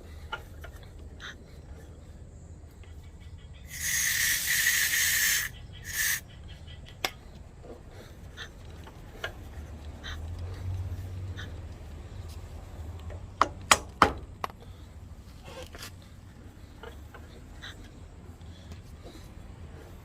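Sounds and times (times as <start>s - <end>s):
pressurized spray hissing: 3.7s - 6.2s.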